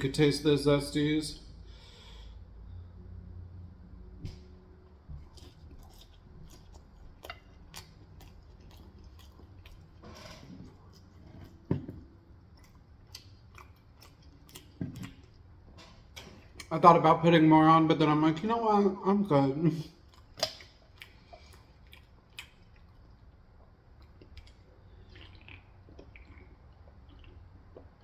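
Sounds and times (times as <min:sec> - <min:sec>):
chewing food: 0:04.8 - 0:16.8, 0:19.9 - 0:28.0.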